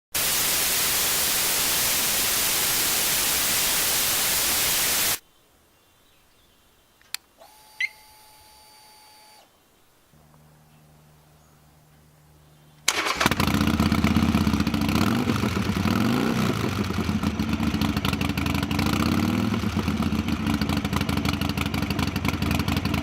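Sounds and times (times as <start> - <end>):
white noise static hiss: 0.2 - 13.2
sharp click: 7.0 - 8.0
faint electronic tone with chirp: 7.4 - 12.8
low steady hum: 7.4 - 14.6.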